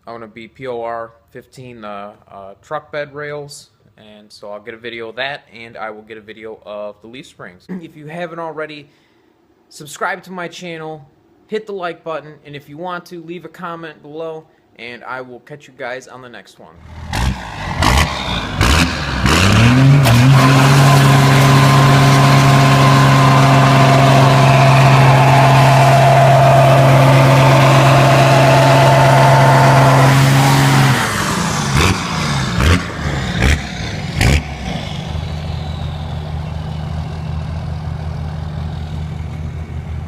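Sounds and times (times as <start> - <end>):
truck engine revving: 16.8 - 40.0.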